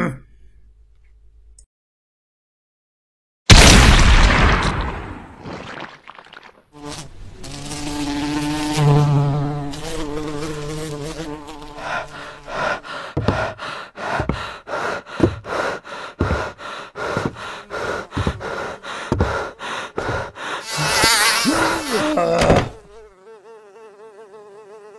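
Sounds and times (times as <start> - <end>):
fly buzzing: 6.8 - 13.6, 14.7 - 24.9.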